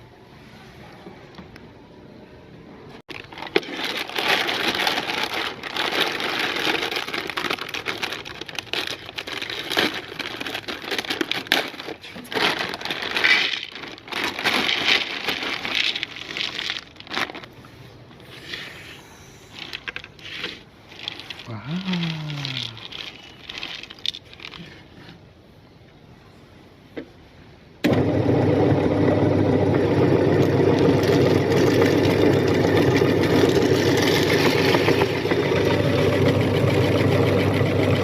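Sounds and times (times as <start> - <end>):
meat grinder crunching: 3.1 - 17.5, 27.9 - 38.0.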